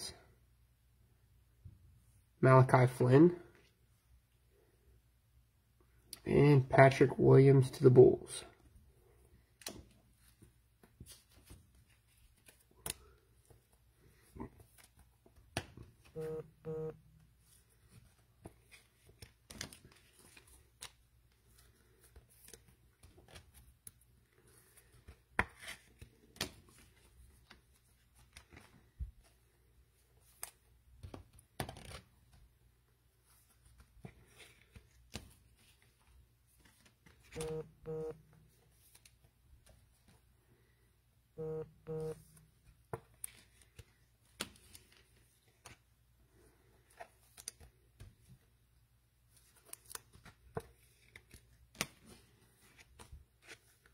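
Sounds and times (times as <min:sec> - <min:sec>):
card wrappers rustling and tearing: 0:17.6 - 0:29.0, 0:49.3 - 0:53.9.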